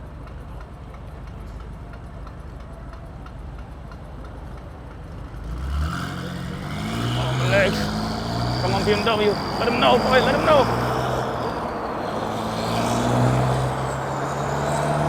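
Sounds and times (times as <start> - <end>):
wind and road noise: 0.0 - 15.0
car engine accelerating: 4.9 - 15.0.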